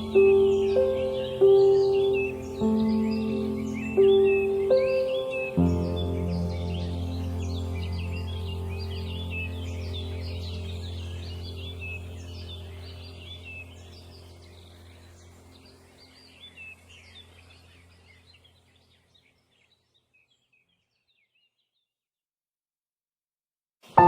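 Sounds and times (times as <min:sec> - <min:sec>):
low steady hum: 0:00.0 - 0:19.0
small birds chirping: 0:00.0 - 0:22.0.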